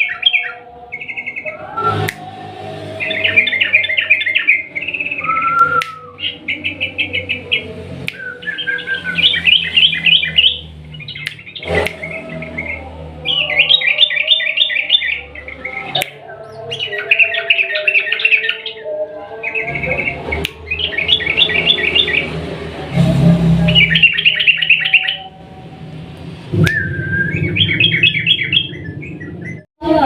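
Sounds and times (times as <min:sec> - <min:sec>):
bird singing rolling song: 0:00.0 - 0:22.5, 0:23.5 - 0:25.9, 0:26.5 - 0:29.7
sharp clicks: 0:11.2 - 0:12.1
low hum: 0:25.1 - 0:29.6.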